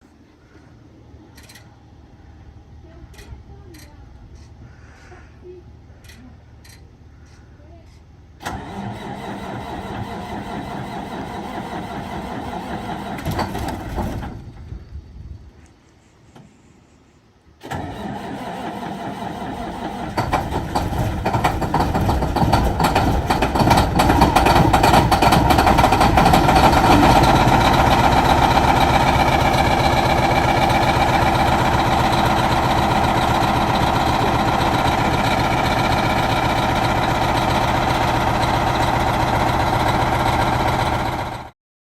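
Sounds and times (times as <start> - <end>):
diesel truck engine starting and running: 8.0 - 15.4, 17.5 - 41.6.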